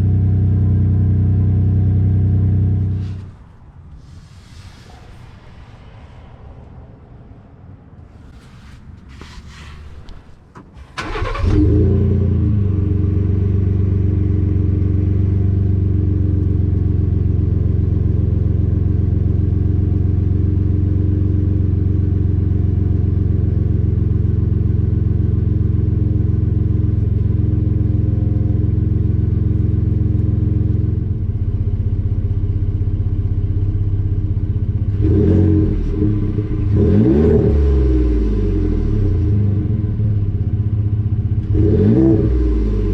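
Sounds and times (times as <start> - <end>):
truck engine starting and idling: 8.0 - 17.9
engine revving blips: 11.0 - 12.6.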